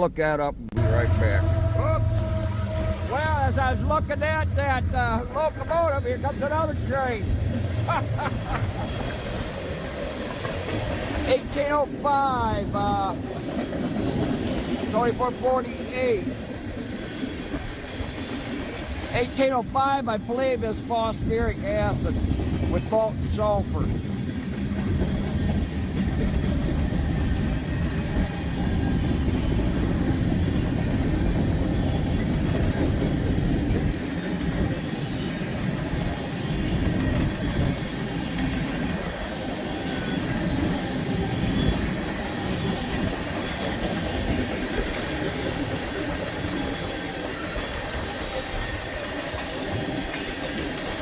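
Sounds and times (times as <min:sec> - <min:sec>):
freight train cars rumbling: 0:00.0 - 0:51.0
wheels clicking over rail joints: 0:09.0 - 0:15.5.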